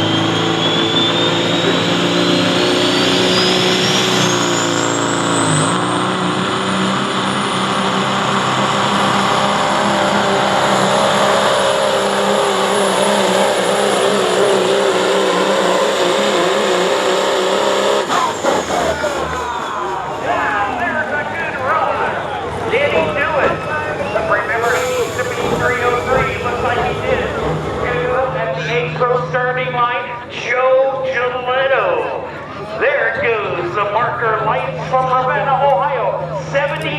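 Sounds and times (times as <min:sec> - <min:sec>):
high whistle rising in pitch: 0:00.0 - 0:05.8, 0:18.1 - 0:20.6
truck diesel engine at full power: 0:00.0 - 0:36.9.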